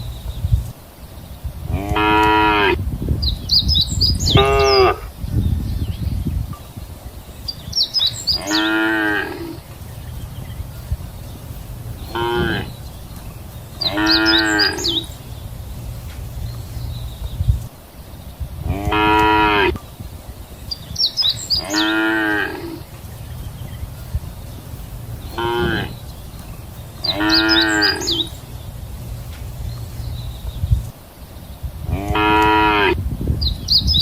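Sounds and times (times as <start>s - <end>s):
cattle mooing: 8.3s - 9.6s, 12.1s - 12.8s, 13.8s - 15.1s, 18.7s - 19.8s, 21.6s - 22.8s, 25.4s - 26.0s, 27.0s - 28.3s, 31.9s - 33.0s
steady low rumble: 9.4s - 21.7s, 22.6s - 32.2s.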